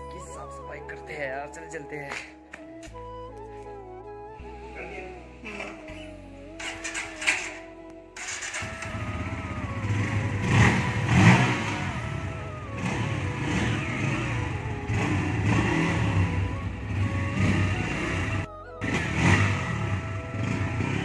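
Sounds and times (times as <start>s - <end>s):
background music: 0.0s - 21.0s
motorcycle engine starting and revving: 5.4s - 6.0s, 6.6s - 21.0s.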